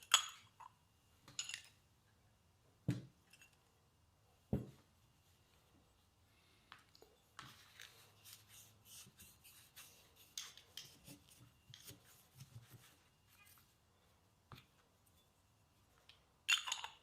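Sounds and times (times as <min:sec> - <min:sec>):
scraping and rubbing strokes: 0:07.4 - 0:13.8.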